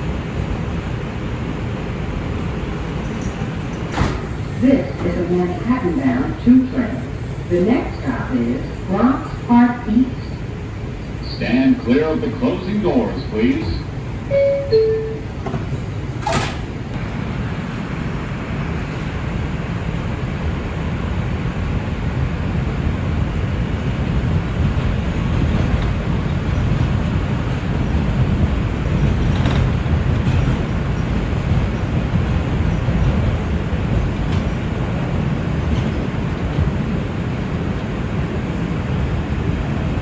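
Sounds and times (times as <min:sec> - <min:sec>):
train rumbling on rails: 0:00.0 - 0:40.0
doors shutting thud: 0:03.1 - 0:05.3, 0:13.6 - 0:16.8
two-tone door chime: 0:14.3 - 0:15.7.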